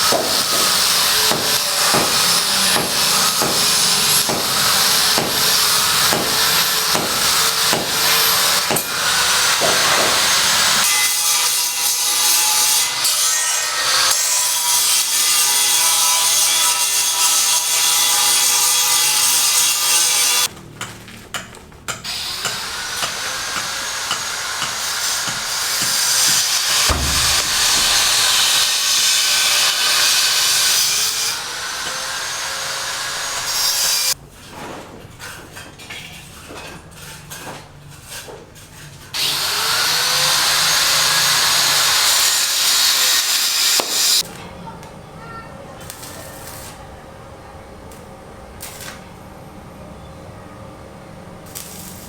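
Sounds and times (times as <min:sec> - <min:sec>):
rhythmic rasping strokes: 0:23.0 - 0:31.0.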